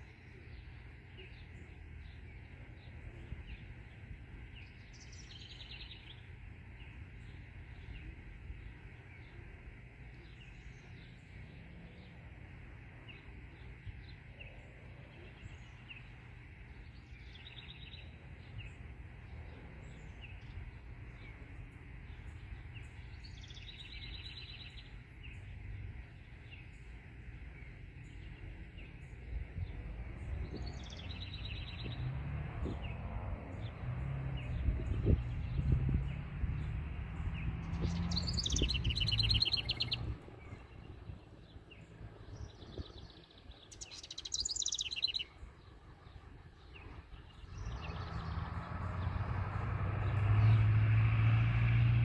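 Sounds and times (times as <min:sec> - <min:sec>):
songbird chirping and trilling: 0:00.0 - 0:52.0
low rumble: 0:28.9 - 0:43.0.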